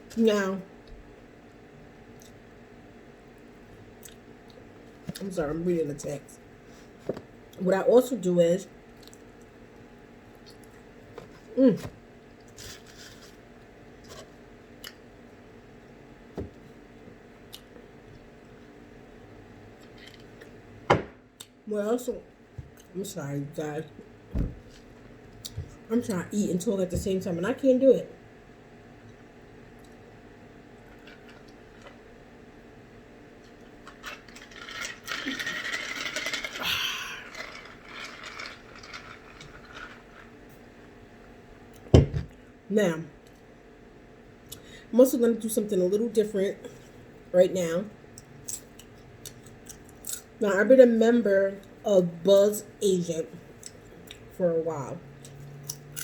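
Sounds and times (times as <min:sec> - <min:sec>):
low thump: 0:24.3 - 0:24.7.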